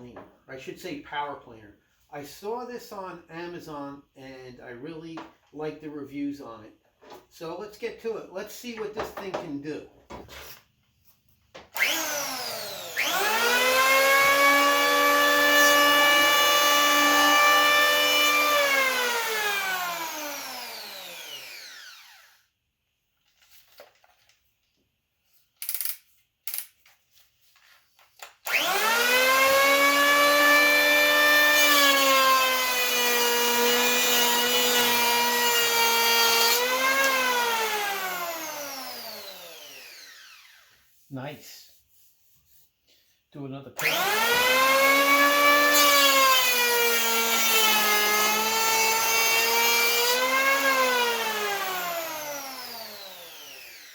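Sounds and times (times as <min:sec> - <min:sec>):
electric planer whining: 0:11.8 - 0:22.4, 0:28.5 - 0:40.7, 0:43.8 - 0:53.9.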